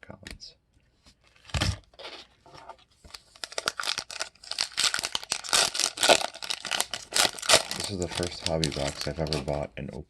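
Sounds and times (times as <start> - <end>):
foil wrapper crinkling and tearing: 3.1 - 9.6.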